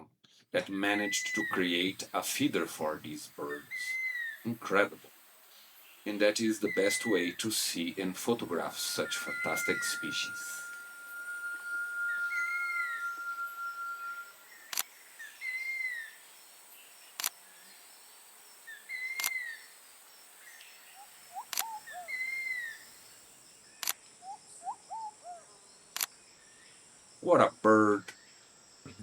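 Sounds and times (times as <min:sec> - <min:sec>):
high insect drone: 0:00.6 - 0:29.0
bird whistled note: 0:00.9 - 0:04.5, 0:06.1 - 0:16.2, 0:21.0 - 0:22.9.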